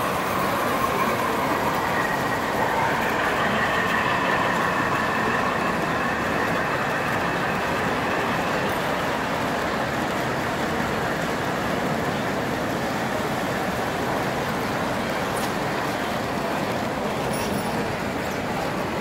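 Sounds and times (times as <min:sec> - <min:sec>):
busy hall din: 0:00.0 - 0:19.0
model trains running: 0:00.0 - 0:19.0.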